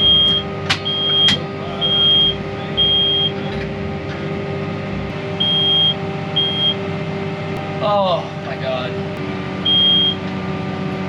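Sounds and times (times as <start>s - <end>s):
high warning beeps: 0.0s - 3.4s, 5.4s - 6.8s, 9.6s - 10.2s
tractor engine running: 0.0s - 11.0s.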